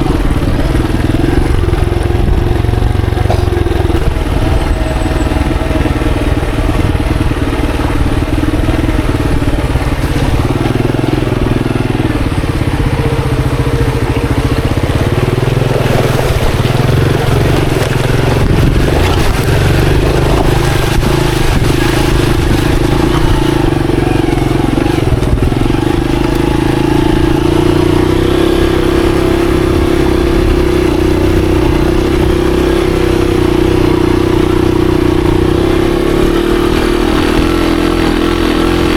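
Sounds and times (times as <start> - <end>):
motorcycle engine running: 0.0 - 38.9
rattling knocks: 3.1 - 4.3.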